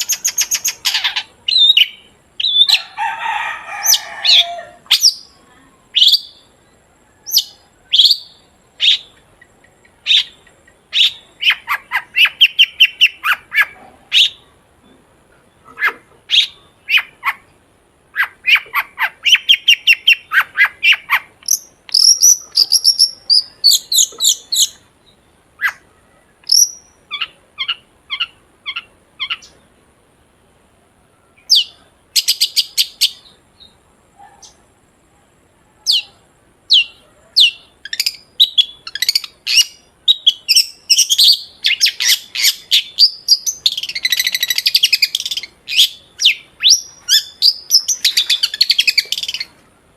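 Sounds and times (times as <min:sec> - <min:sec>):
shrike singing: 0:00.0 - 0:14.5.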